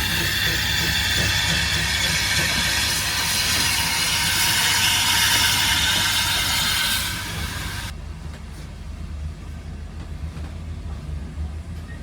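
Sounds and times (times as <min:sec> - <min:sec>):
steam train hissing and rumbling: 0:00.0 - 0:07.9.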